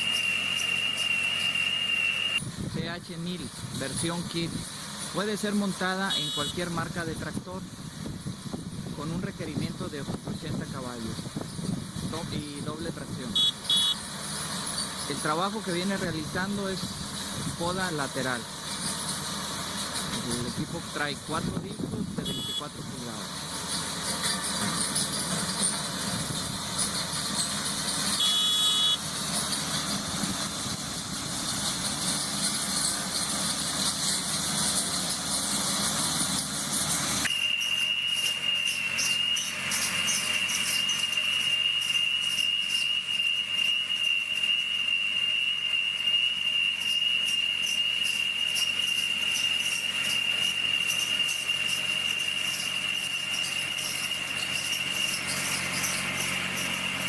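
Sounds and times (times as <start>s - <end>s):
brief beep: 0.0s - 2.4s, 13.3s - 14.0s, 22.2s - 22.7s, 28.2s - 29.0s
tree-cutting machinery whining: 0.0s - 57.0s.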